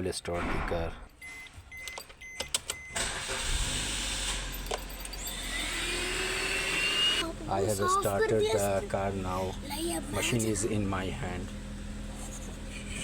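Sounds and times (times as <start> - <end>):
car engine starting and running: 0.6 - 12.1
ignition clicks: 1.2 - 3.6.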